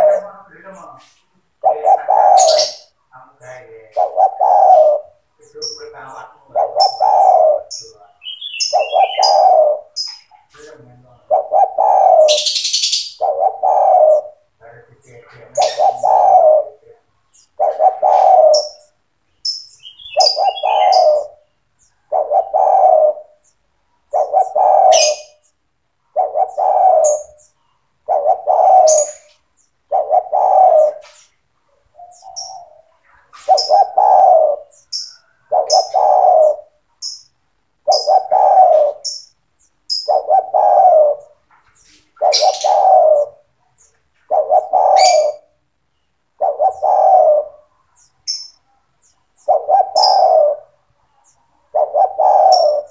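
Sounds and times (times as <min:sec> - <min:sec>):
dove cooing: 0:00.0 - 0:52.9
faint high chirps: 0:18.3 - 0:22.2.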